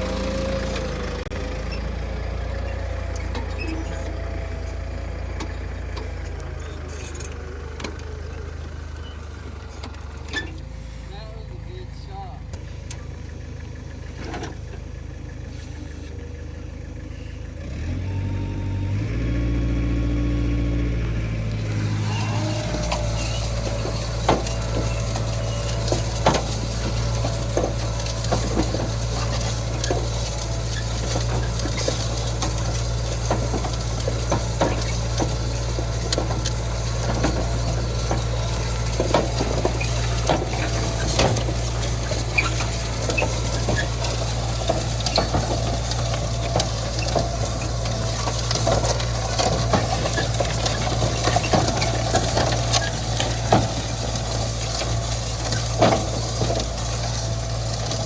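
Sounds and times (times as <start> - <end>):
tractor diesel engine: 0.0 - 58.0
irregular clicks and rattles: 21.3 - 58.0.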